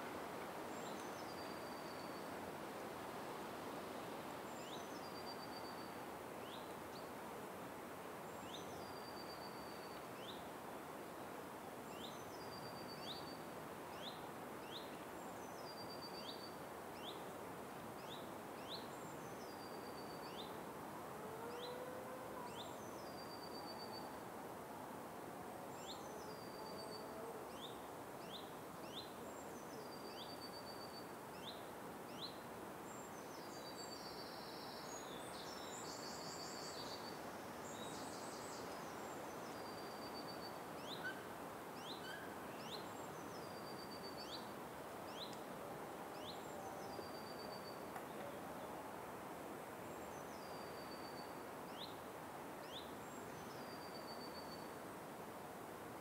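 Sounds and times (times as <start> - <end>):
background hiss: 0.0 - 56.0
forest birds calling: 31.4 - 44.5.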